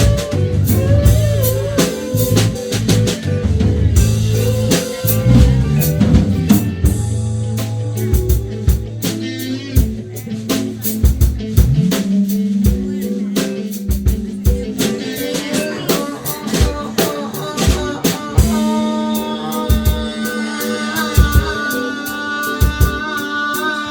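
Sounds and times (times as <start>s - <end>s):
bass line sliding: 0.0s - 15.1s
drum kit beat: 0.0s - 23.9s
guitar playing: 0.0s - 23.9s.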